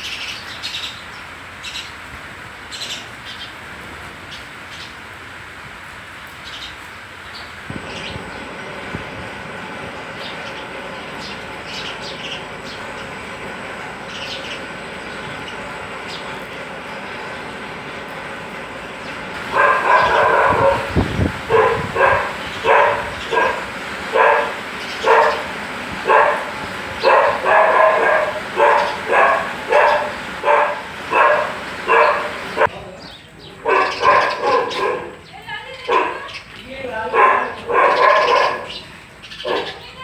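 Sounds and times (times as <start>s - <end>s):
steady background hiss: 7.4s - 32.8s.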